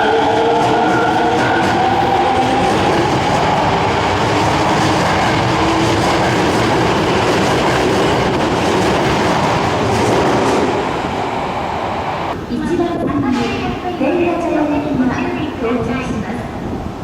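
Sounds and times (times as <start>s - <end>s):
subway train wheels clattering: 0.0s - 17.0s.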